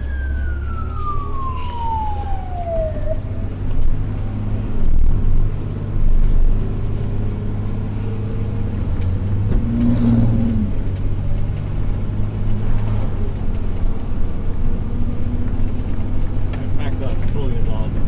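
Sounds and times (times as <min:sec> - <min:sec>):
short low tone: 0:00.0 - 0:04.0
fire engine drone inside cab: 0:00.0 - 0:18.0.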